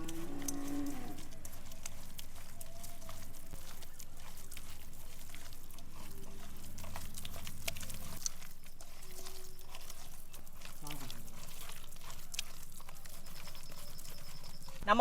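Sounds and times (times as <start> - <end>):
cow lowing: 0.0 - 8.2
wet clicks and taps: 0.0 - 14.8.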